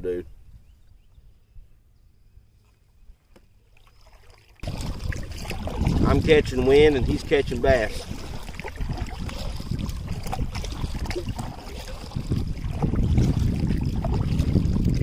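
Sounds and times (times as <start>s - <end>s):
water splashing against hull: 3.4s - 15.0s
wind rumbling on microphone: 4.6s - 15.0s.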